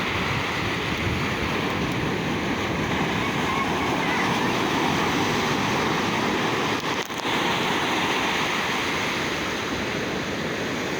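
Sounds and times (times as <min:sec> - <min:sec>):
ocean surf breaking: 0:00.0 - 0:10.9.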